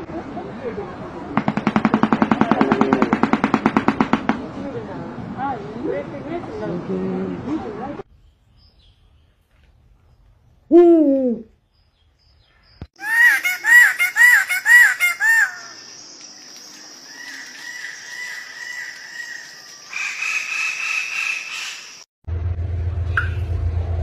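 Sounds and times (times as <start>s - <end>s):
loud arched bird calls: 12.4s - 16.1s, 16.7s - 22.1s.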